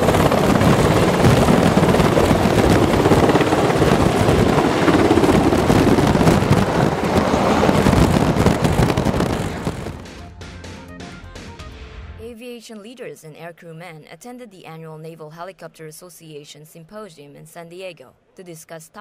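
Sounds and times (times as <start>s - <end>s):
helicopter rotor and turbine: 0.0s - 10.2s.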